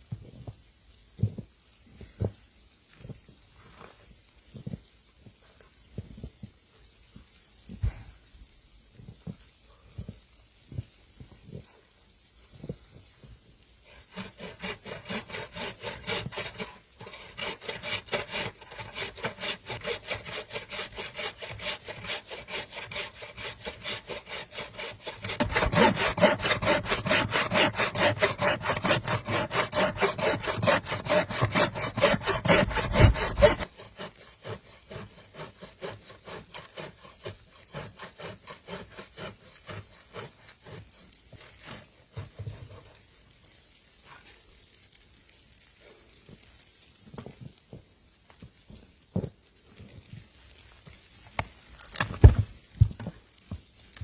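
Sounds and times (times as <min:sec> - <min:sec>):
hand saw cutting wood: 0:13.9 - 0:42.9.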